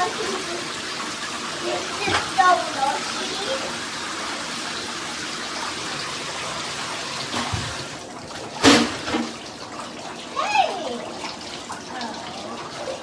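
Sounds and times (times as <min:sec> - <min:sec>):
shower spraying water: 0:00.0 - 0:13.0
knock or splash: 0:07.3 - 0:07.9, 0:08.6 - 0:09.4.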